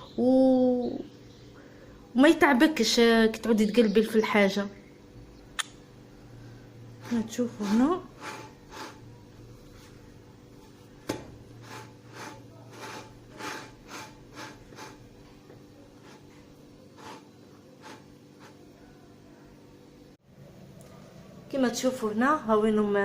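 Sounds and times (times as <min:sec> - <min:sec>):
soft rubbing over flatbreads: 0:07.0 - 0:15.1, 0:15.9 - 0:18.7.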